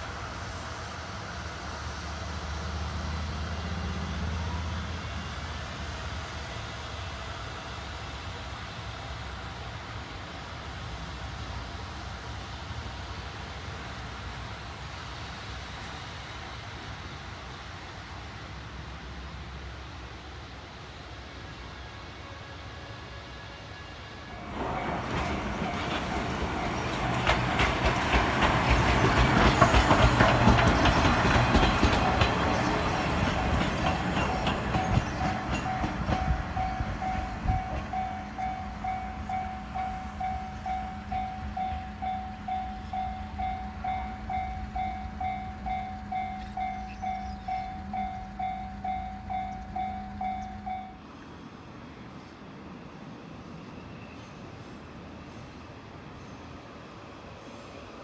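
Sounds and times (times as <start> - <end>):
train rail clatter: 24.4 - 50.9
level crossing alarm bell: 35.7 - 51.0.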